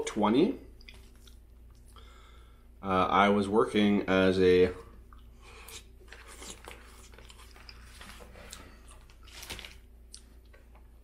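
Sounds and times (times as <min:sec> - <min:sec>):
low steady hum: 0:00.0 - 0:11.0
chewing fries: 0:00.8 - 0:02.0, 0:05.1 - 0:10.6.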